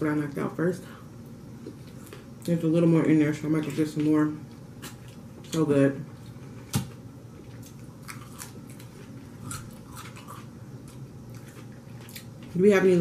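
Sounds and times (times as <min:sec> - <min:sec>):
chewing salad: 0:03.6 - 0:13.0.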